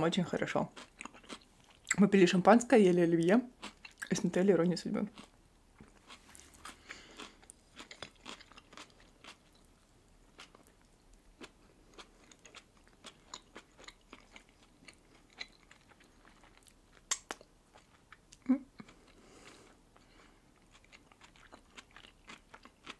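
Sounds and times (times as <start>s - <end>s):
wet chewing clicks and crunches: 0.7s - 2.0s, 3.6s - 4.2s, 5.1s - 19.2s, 20.0s - 22.9s
lip smacks: 17.0s - 17.5s.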